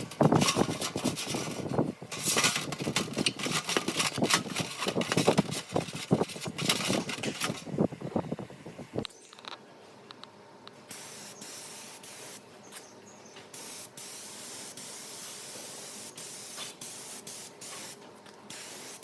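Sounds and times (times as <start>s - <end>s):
hand scraping and rubbing a part: 0.0s - 7.8s.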